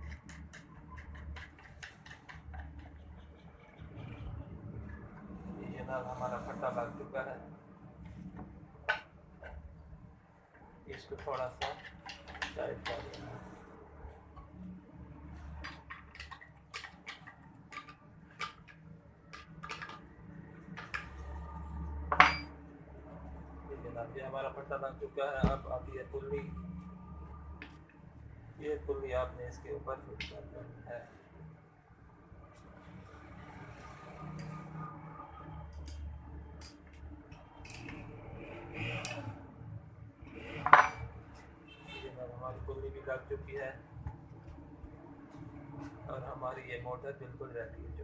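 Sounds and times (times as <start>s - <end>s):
metal clicks and clinks: 35.7s - 38.0s.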